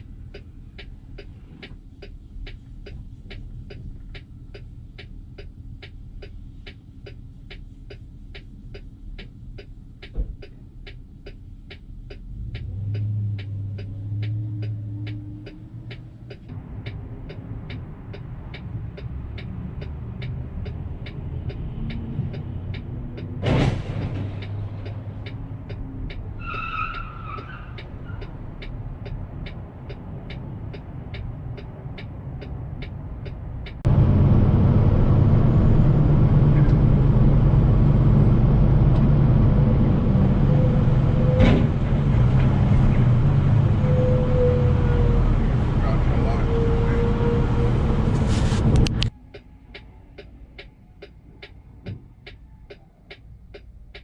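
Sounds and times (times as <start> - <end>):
regular ticking: 0.0 - 23.4, 24.2 - 33.9, 48.9 - 54.0
engine and road rumble: 0.0 - 54.0.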